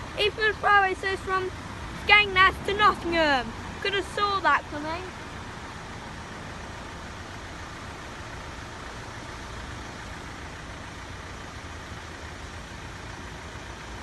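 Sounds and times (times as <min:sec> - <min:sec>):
vehicles idling in traffic: 0:00.0 - 0:14.0.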